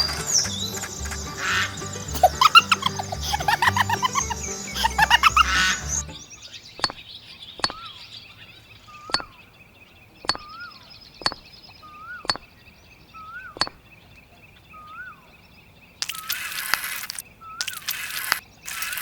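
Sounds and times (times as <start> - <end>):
sharp clicks: 16.0 - 19.0.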